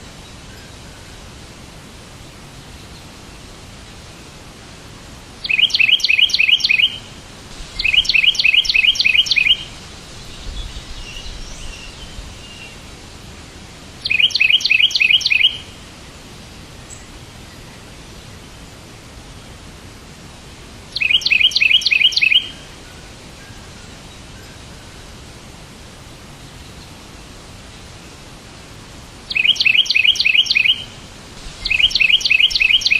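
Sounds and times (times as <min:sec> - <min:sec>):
steady hiss: 0:00.0 - 0:32.9
bird chirping: 0:05.4 - 0:07.1, 0:07.7 - 0:12.8, 0:14.0 - 0:15.8, 0:20.9 - 0:22.6, 0:29.3 - 0:32.9.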